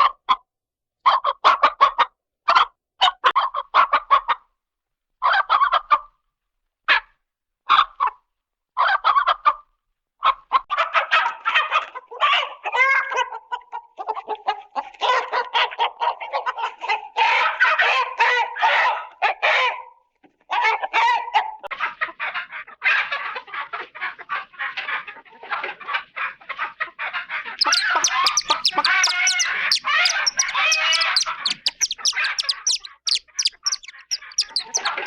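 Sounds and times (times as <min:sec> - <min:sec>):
chicken clucking: 0:10.2 - 0:35.0.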